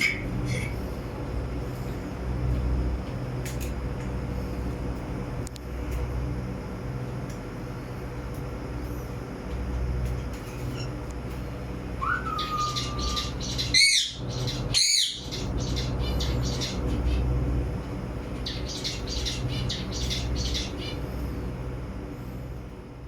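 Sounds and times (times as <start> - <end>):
rapid chirping: 11.9 - 17.5, 18.3 - 21.2
parrot squawks: 12.0 - 15.5.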